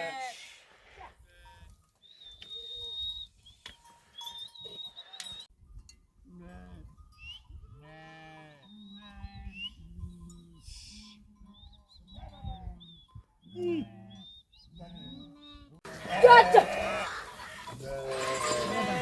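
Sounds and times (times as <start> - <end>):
livestock bleating: 0.0 - 0.5, 7.8 - 9.6, 15.9 - 19.0.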